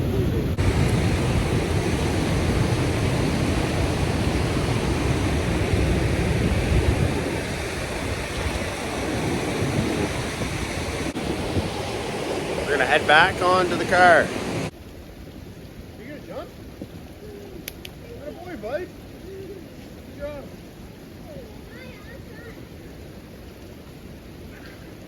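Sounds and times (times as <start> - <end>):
waterfall rushing: 0.0 - 14.8.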